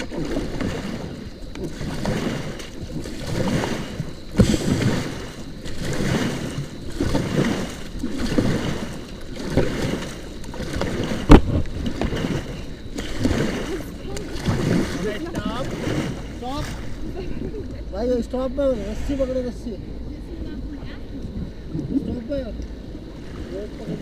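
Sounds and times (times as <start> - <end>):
paddle knocking on raft: 0.0 - 17.0
paddles pulling through water: 0.0 - 24.0.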